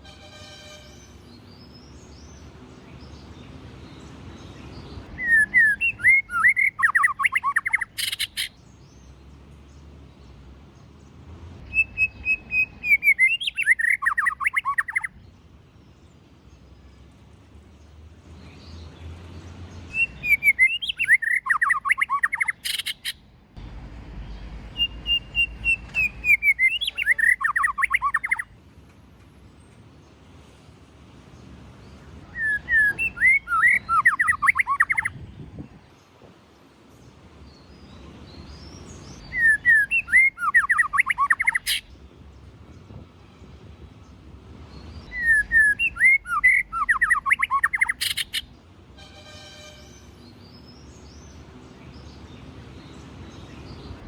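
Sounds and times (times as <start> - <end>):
bird singing whistled notes: 4.8 - 8.6, 11.6 - 15.2, 19.9 - 23.2, 24.7 - 28.5, 32.3 - 35.4, 37.5 - 41.9, 44.7 - 48.6.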